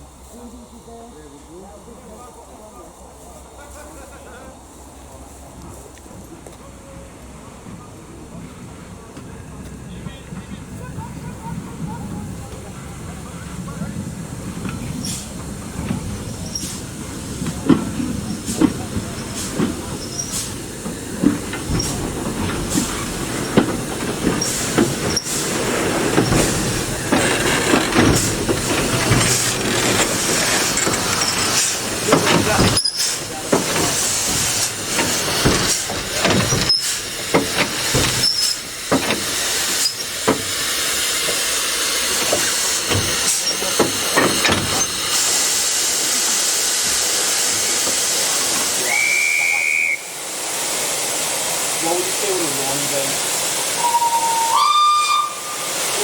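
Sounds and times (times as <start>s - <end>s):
steam hissing: 0.0s - 56.0s
steam train rumbling: 0.0s - 56.0s
wheels clanking and knocking: 5.7s - 46.4s.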